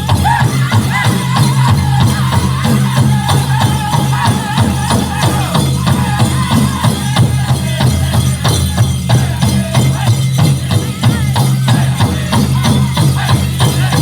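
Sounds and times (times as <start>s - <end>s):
big drum fast beat: 0.0s - 14.0s
group singing: 0.0s - 14.0s
rattling jingling: 0.0s - 14.0s.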